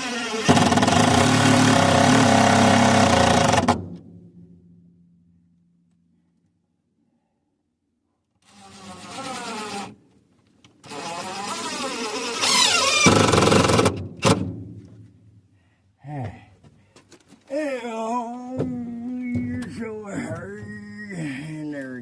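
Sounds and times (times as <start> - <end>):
power tool motor running: 0.0 - 3.7, 10.8 - 13.9.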